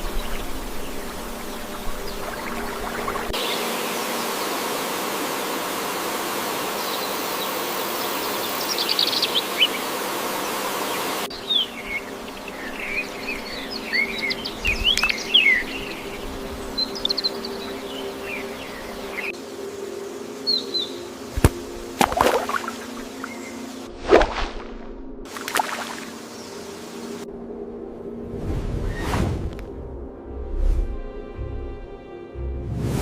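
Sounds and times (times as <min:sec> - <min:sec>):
wild birds chirping: 0:00.0 - 0:23.9, 0:25.3 - 0:27.2
insect buzz: 0:00.0 - 0:30.3.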